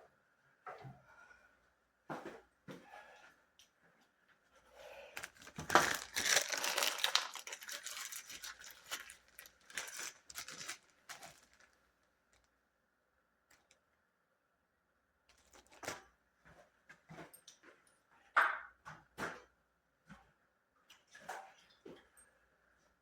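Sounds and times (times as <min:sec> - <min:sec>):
rustling and crinkling: 0:05.1 - 0:12.5, 0:15.3 - 0:16.1.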